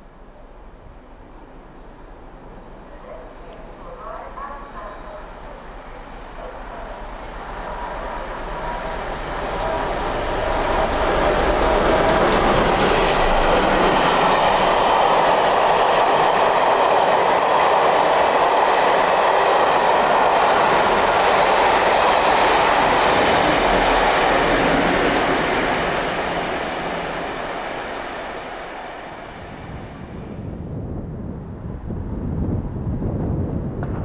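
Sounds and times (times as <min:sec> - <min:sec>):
train wheels rolling on rails: 0:04.6 - 0:30.4.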